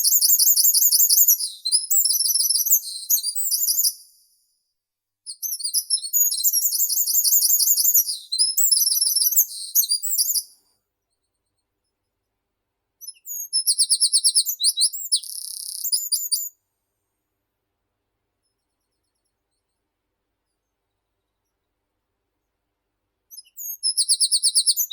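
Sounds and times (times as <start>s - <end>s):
small songbird singing: 0.0s - 4.6s, 5.3s - 10.6s, 13.0s - 16.6s, 23.3s - 24.9s.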